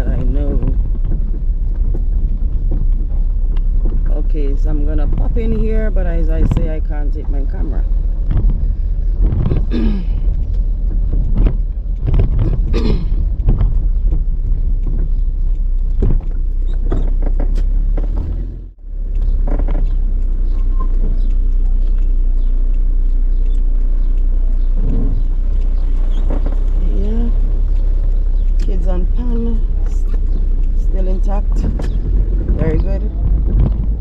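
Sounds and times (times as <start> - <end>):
knocks and rattles: 0.0 - 21.3, 24.6 - 34.0
car engine low rumble: 0.0 - 34.0.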